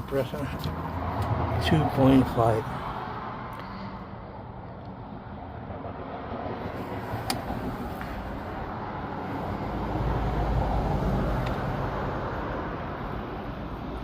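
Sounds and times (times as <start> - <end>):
passing road vehicle rumble: 0.0 - 14.0.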